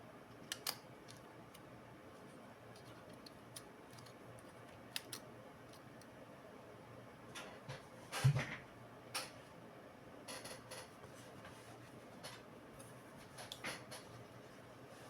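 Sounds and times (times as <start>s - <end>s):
small parts and tools clicking: 2.7s - 6.1s.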